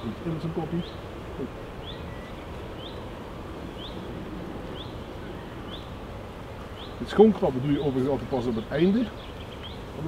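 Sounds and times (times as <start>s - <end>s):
honeybee colony humming: 0.0s - 10.0s
bird rising call: 0.8s - 7.0s.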